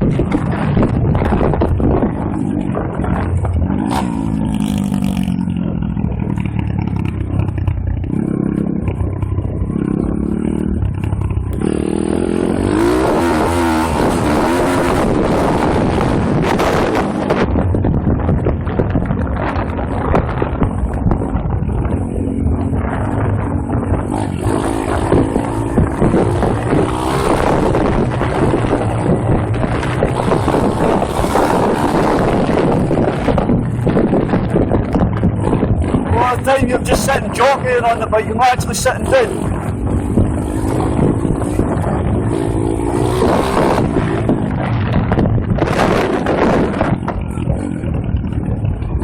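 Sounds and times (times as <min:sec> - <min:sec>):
dirt bike engine revving: 0:00.0 - 0:17.5, 0:21.2 - 0:49.0
wind buffeting microphone: 0:00.0 - 0:49.0.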